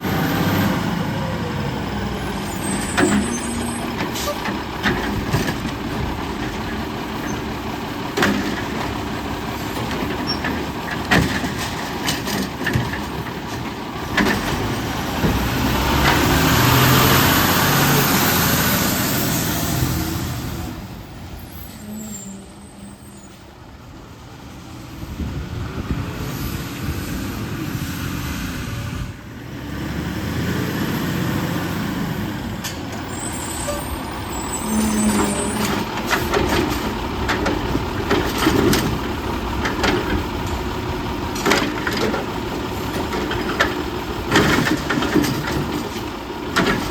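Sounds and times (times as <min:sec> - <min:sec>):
diesel engine running: 0:00.0 - 0:46.9
metal clanks and bangs: 0:02.6 - 0:16.6, 0:34.7 - 0:46.9.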